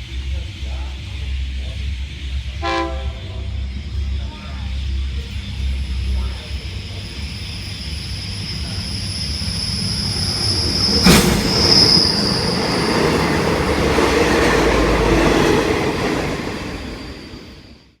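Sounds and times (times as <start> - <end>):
train wheels rumbling on rails: 0.0 - 18.0
high-pitched wheel squeal: 5.6 - 14.3, 15.2 - 17.9.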